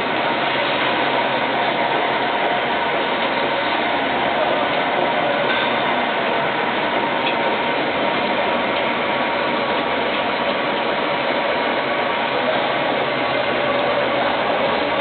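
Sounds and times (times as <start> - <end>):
bottle rinsing machine running: 0.0 - 15.0.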